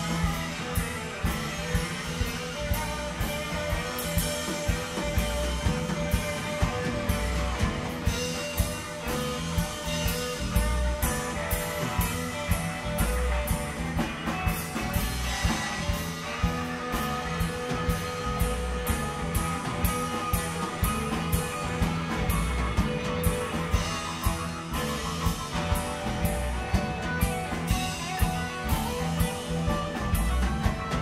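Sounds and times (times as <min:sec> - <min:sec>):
bass guitar: 0:00.0 - 0:31.0
drum kit beat: 0:00.0 - 0:31.0
electric guitar: 0:00.0 - 0:31.0.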